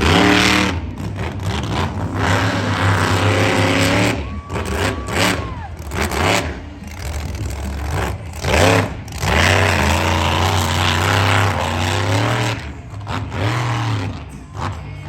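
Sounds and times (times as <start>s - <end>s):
big engine revving: 0.0s - 15.0s.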